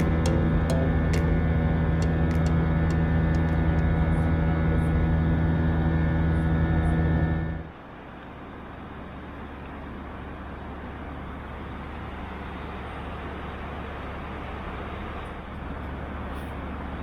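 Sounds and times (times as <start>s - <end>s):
vehicle interior rumble and hiss: 7.7s - 17.0s.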